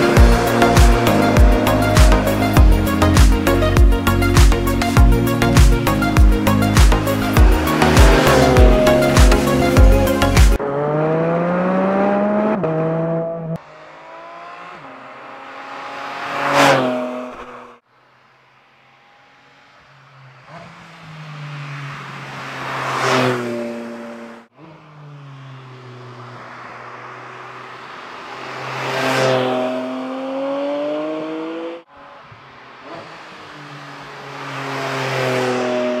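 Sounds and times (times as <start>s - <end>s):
sports car engine passing by: 0.0s - 3.4s, 6.6s - 36.0s.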